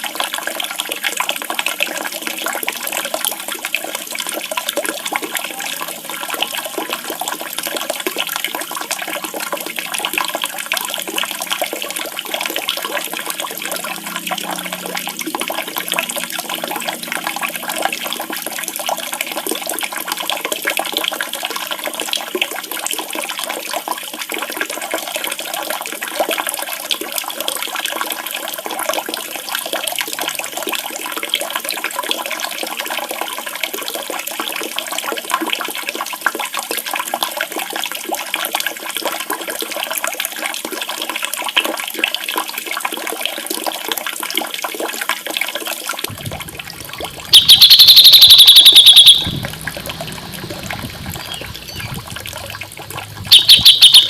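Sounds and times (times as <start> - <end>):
running splashing water: 0.0 - 34.5, 44.4 - 54.0
songbird trill: 47.3 - 49.5, 50.5 - 52.6, 53.3 - 54.0.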